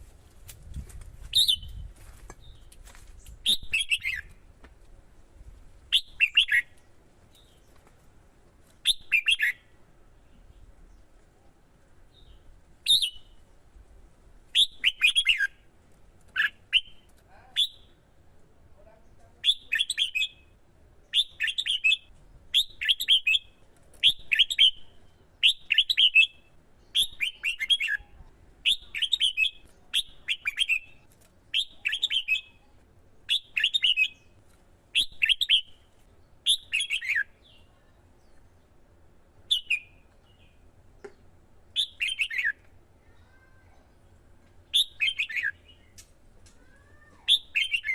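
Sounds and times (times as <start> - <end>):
bird singing whistled phrases: 1.3 - 1.8, 3.4 - 4.3, 5.9 - 6.7, 8.8 - 9.6, 12.8 - 13.4, 14.5 - 15.5, 25.4 - 32.6, 33.3 - 34.2, 36.5 - 37.6, 39.5 - 40.0, 41.8 - 42.6, 44.7 - 45.9, 47.3 - 47.9.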